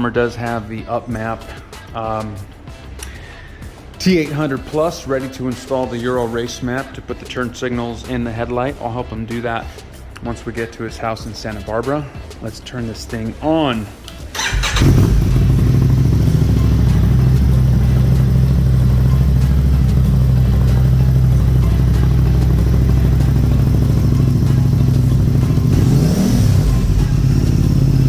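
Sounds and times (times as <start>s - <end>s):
motorcycle engine idling: 14.4s - 28.0s.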